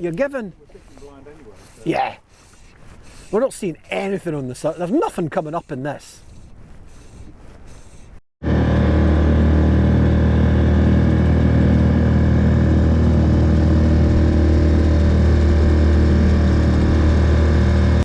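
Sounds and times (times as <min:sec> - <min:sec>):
outboard motor running: 0:08.4 - 0:18.0.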